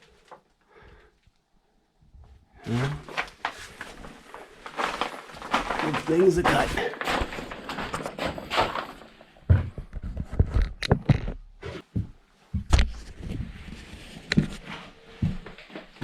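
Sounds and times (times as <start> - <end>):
irregular knocks and thuds: 4.9 - 13.4.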